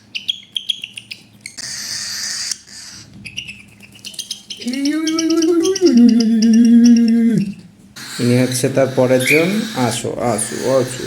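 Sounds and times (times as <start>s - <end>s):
person humming: 4.6s - 8.3s
bird chick hissing: 8.0s - 11.0s.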